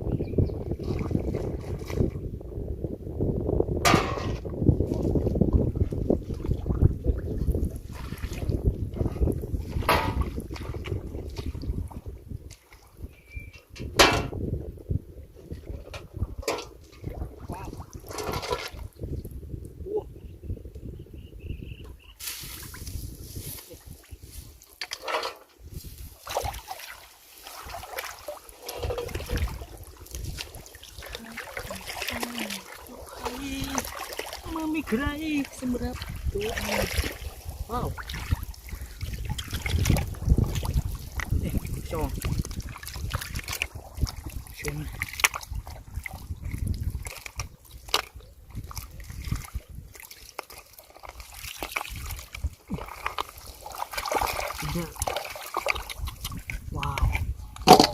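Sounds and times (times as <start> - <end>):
wind rumbling on microphone: 0.0 - 26.7, 27.4 - 57.9
water sloshing and splashing: 0.6 - 2.3, 3.8 - 14.4, 15.3 - 19.7, 22.1 - 57.9.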